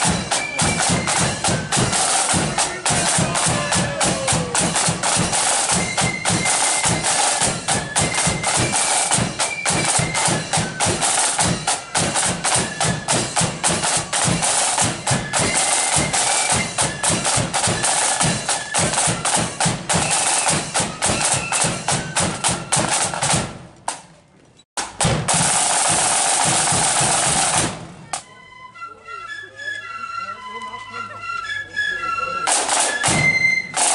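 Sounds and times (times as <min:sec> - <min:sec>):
bass drum beats: 0:00.0 - 0:15.3
high flute melody: 0:00.0 - 0:23.2, 0:28.1 - 0:33.9
snare drum strokes: 0:00.0 - 0:24.1, 0:24.8 - 0:28.3, 0:32.4 - 0:33.9.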